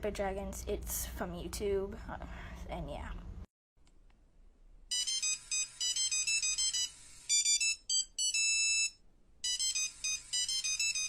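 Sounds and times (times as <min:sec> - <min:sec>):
electronic phone ringtone: 0:04.9 - 0:11.0.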